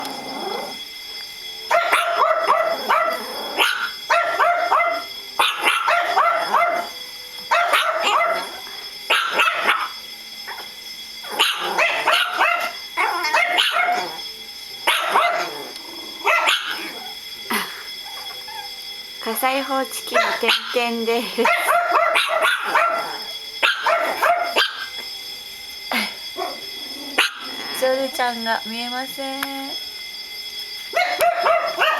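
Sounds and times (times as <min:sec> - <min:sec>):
fire alarm tone: 0:00.0 - 0:31.9
dog barking: 0:01.7 - 0:06.9, 0:07.5 - 0:10.0, 0:11.4 - 0:14.2, 0:14.9 - 0:15.6, 0:16.2 - 0:17.0, 0:20.1 - 0:24.9, 0:27.2 - 0:27.6, 0:31.0 - 0:31.9.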